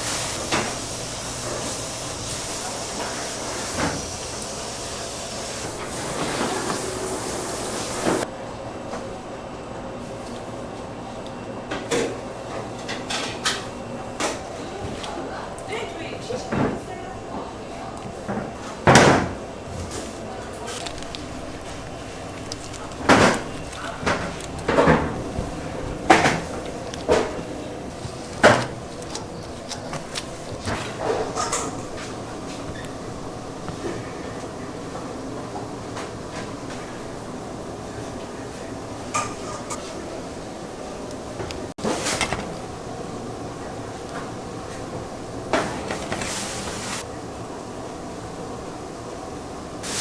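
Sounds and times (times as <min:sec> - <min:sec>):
steady background noise: 0:00.0 - 0:49.9
rustling noise: 0:19.7 - 0:34.1, 0:45.6 - 0:47.1.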